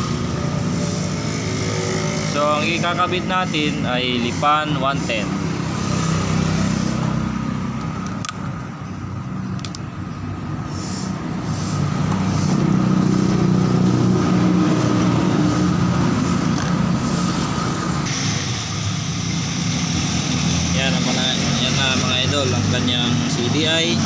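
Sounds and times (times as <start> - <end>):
vehicle engine running: 0.0 - 9.8, 10.4 - 24.0
sharp clicks: 7.8 - 8.7, 9.5 - 9.9.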